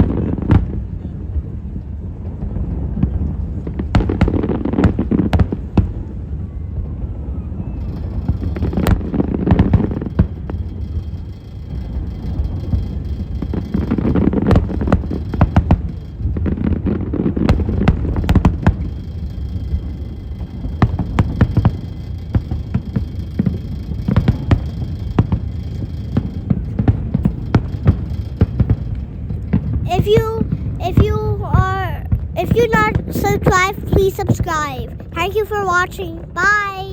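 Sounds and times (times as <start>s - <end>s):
continuous low rumble: 0.0s - 36.9s
firework shells bursting: 7.8s - 31.1s.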